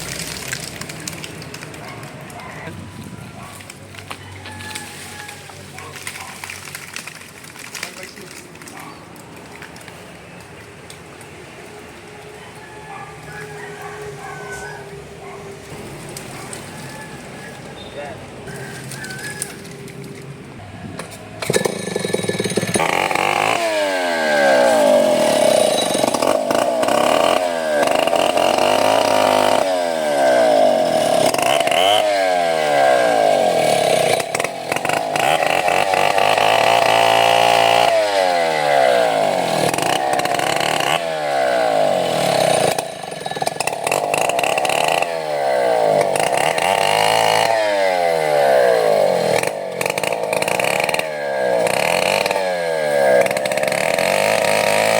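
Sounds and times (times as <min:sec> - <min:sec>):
chainsaw cutting wood: 0:20.9 - 0:54.9.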